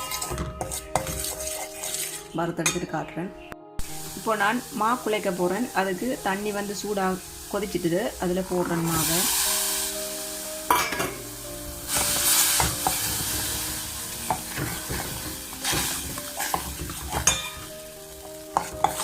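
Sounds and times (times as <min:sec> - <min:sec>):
spoon stirring and scraping pan: 0:00.0 - 0:02.9, 0:11.8 - 0:19.0.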